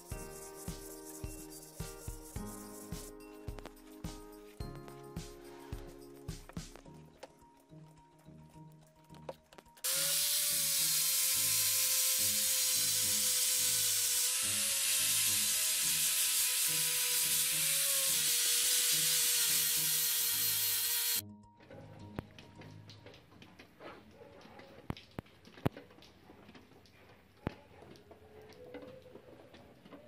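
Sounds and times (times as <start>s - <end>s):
angle grinder sanding metal: 9.8s - 21.2s.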